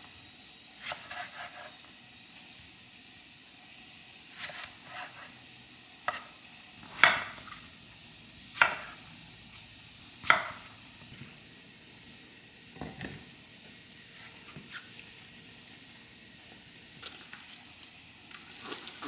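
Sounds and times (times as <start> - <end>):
knife chopping on cutting board: 6.1 - 7.6, 8.6 - 9.0, 10.2 - 10.7.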